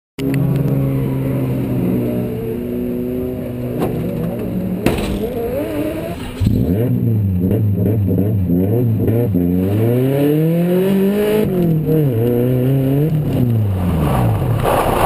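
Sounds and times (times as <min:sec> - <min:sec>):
car engine idling and revving: 0:00.2 - 0:15.0
car door clacking shut: 0:03.7 - 0:06.6.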